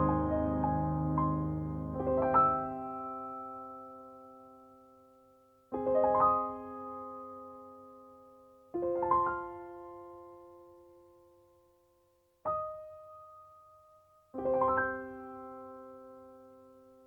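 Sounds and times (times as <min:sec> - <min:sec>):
slow piano chords: 0:00.0 - 0:04.7.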